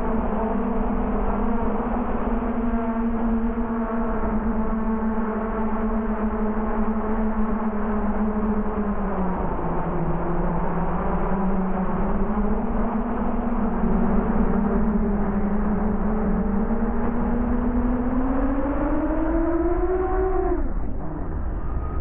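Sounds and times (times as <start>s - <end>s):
low rumble: 20.6s - 22.0s.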